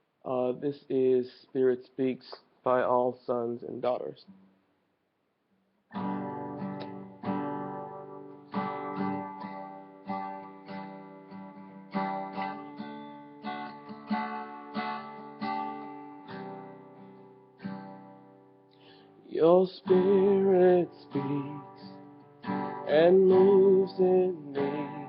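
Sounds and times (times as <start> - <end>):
acoustic guitar strummed chords: 5.9 - 25.0.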